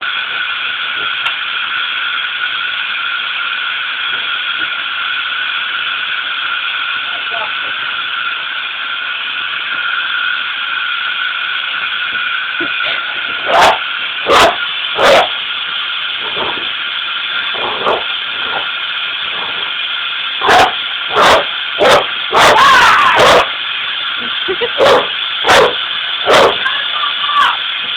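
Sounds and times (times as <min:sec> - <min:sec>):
vacuum cleaner running: 0:00.0 - 0:27.9
dog barking: 0:13.4 - 0:15.4, 0:20.4 - 0:22.6, 0:23.2 - 0:23.5, 0:24.8 - 0:26.6.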